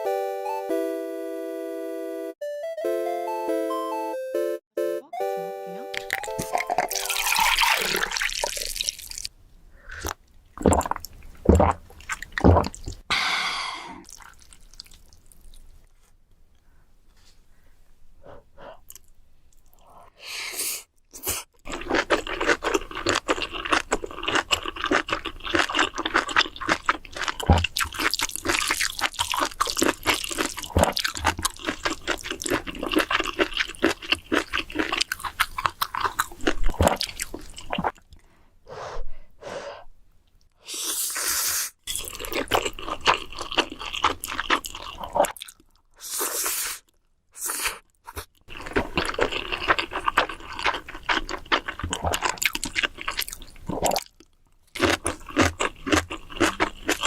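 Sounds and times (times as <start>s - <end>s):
slurping and chewing noodles: 6.0s - 9.3s, 9.9s - 13.1s, 14.0s - 16.1s, 18.9s - 38.2s, 40.6s - 57.0s.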